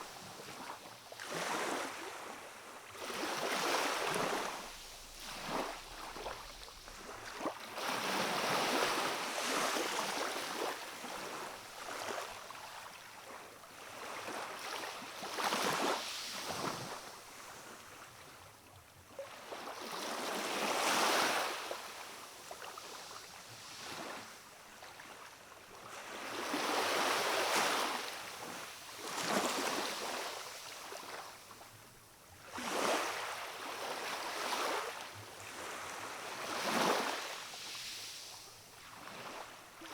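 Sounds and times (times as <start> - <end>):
small waves on rocky shore: 0.0 - 13.0.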